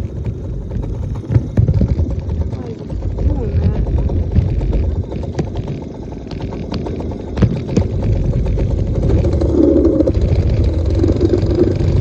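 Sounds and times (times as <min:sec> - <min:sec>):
dirt bike engine running: 0:00.0 - 0:12.0
sharp clicks and rattles: 0:00.0 - 0:12.0.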